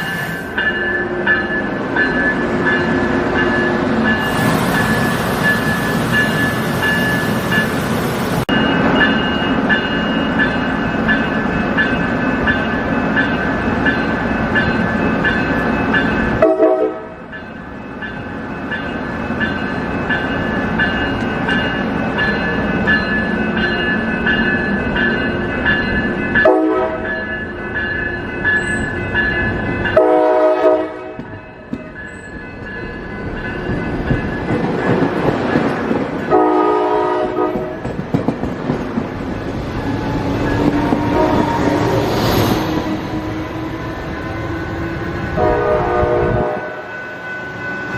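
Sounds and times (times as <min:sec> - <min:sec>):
train rail noise: 0:00.0 - 0:47.9
train air horn blasts: 0:16.4 - 0:17.2, 0:26.4 - 0:27.1, 0:30.0 - 0:31.2, 0:36.3 - 0:37.8, 0:41.0 - 0:42.0, 0:45.4 - 0:46.9.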